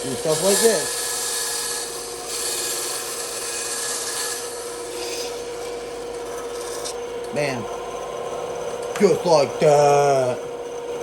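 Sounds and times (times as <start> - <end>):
saw blade rasping through wood: 0.0 - 7.0
bandsaw motor hum: 0.0 - 11.0.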